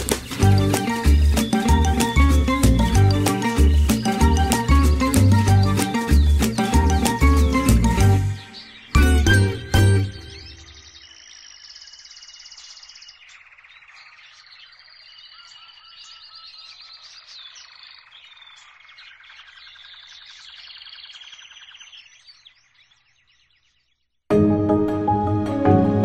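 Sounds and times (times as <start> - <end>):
songbirds singing and calling: 0.0 - 24.2.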